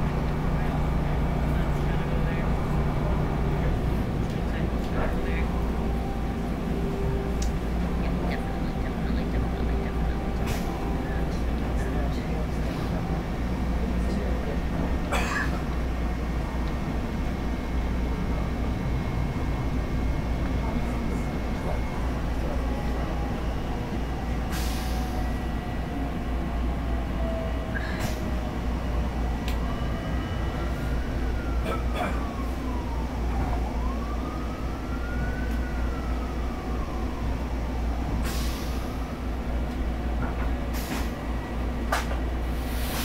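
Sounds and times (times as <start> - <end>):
train rumbling inside car: 0.0 - 34.0, 36.7 - 43.0
siren wailing: 28.5 - 38.2.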